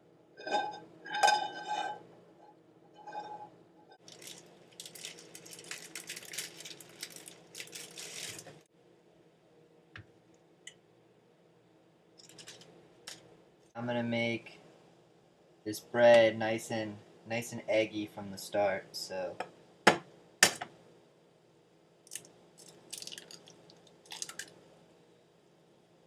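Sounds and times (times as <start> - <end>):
metal cookware clinking: 0.4 - 2.0
plastic packaging crinkling: 4.0 - 8.6, 12.2 - 12.7, 22.1 - 23.5, 24.1 - 24.5.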